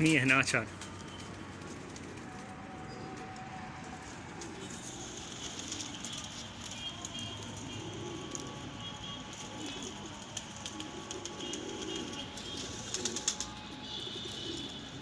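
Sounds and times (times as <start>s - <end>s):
pigeons cooing: 4.0s - 15.0s.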